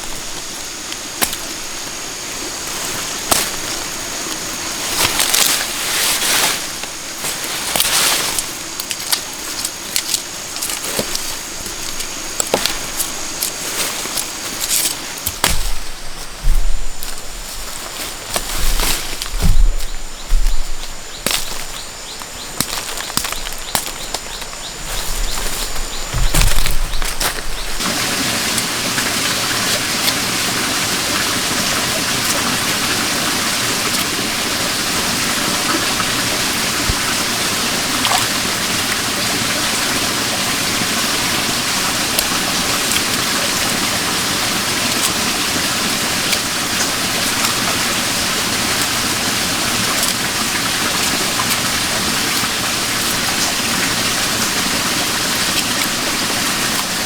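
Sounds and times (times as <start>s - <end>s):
forest stream rushing: 0.0s - 57.0s.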